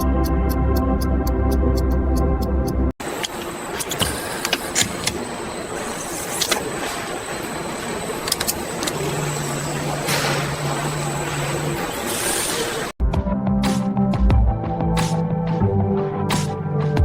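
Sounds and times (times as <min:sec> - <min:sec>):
ticking music: 0:00.0 - 0:02.9
mechanical machinery noise: 0:00.0 - 0:13.0.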